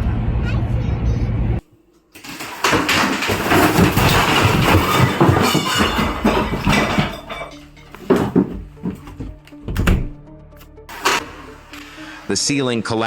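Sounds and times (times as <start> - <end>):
ceiling collapsing debris crash: 2.2 - 9.0.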